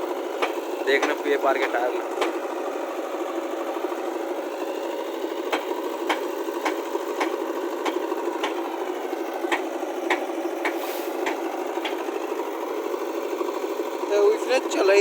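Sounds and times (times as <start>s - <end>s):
tractor engine running: 0.0s - 15.0s
sharp regular clicks: 0.4s - 2.4s, 5.5s - 8.6s, 9.5s - 12.1s.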